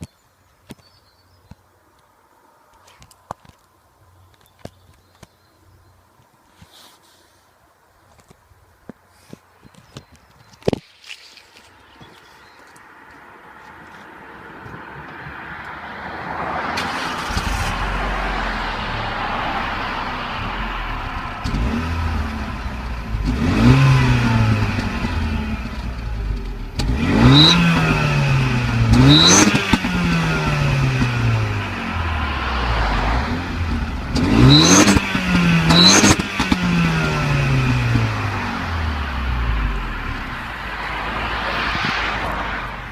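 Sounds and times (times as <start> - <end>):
car engine idling and revving: 14.6 - 42.9.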